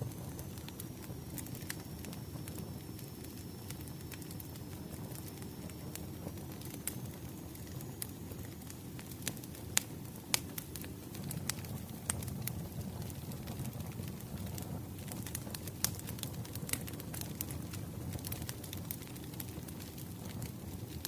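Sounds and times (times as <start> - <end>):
wood fire crackling: 0.0 - 21.0
sharp pops of burning logs: 9.0 - 21.0.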